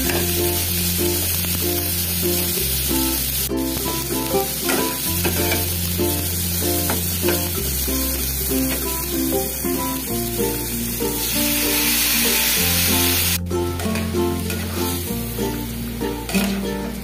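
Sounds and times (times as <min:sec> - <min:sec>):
background music: 0:00.0 - 0:17.0
vegetables sizzling in oil: 0:00.0 - 0:17.0
metal spatula stirring: 0:16.3 - 0:16.6.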